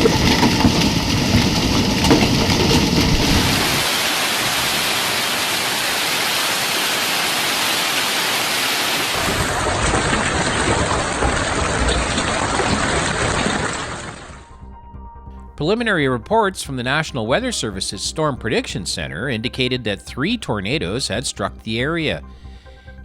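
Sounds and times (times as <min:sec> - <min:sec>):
heavy rain hiss: 0:00.0 - 0:14.4.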